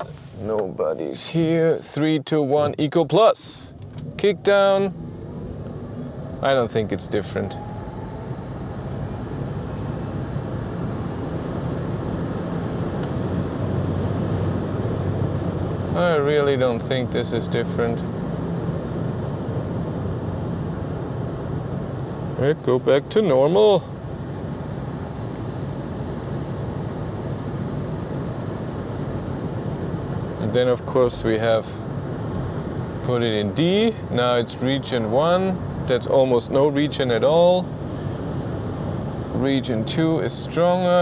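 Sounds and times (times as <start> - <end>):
road and tyre noise in cabin: 0.0 - 41.0
low wavering hum: 3.5 - 22.4.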